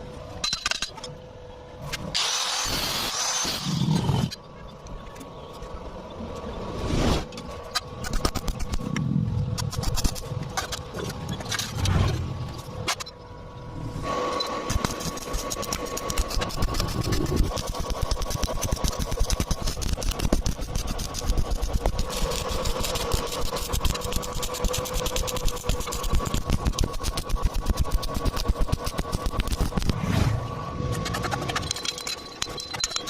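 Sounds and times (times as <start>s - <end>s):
steady high hum: 0.0s - 33.0s
arc welding crackle: 14.7s - 30.0s.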